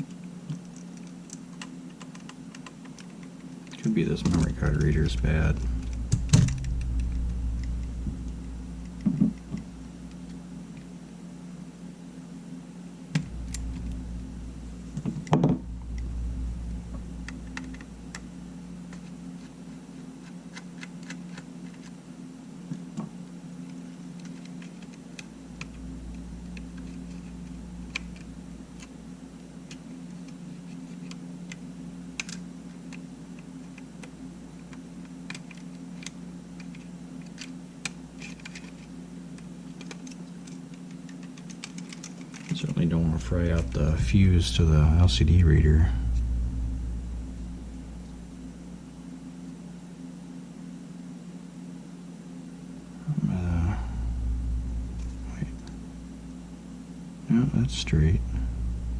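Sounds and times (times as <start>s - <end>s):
steady low hum: 0.0s - 58.9s
small tools clicking and tapping: 32.2s - 34.1s, 39.7s - 42.6s.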